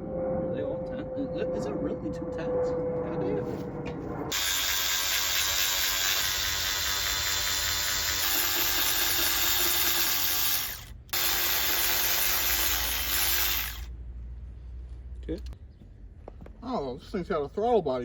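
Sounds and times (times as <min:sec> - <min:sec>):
cordless power tool whirring: 0:04.3 - 0:13.9.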